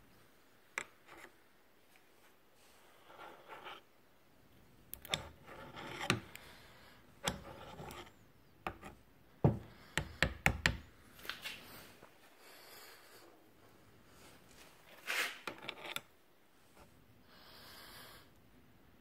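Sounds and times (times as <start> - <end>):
rasping scrapes: 5.0 - 6.3, 7.2 - 9.0.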